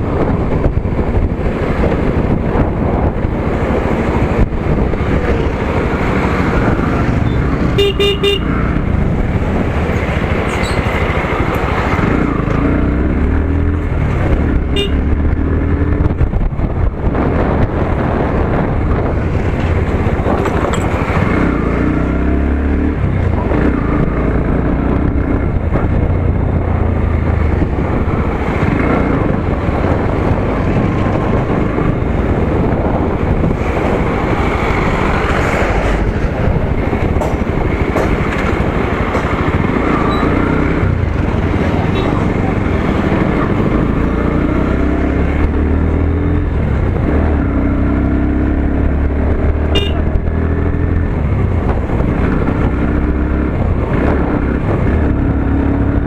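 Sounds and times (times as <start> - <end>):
motorcycle engine accelerating: 0.0 - 56.0
road and wind noise: 0.0 - 56.0.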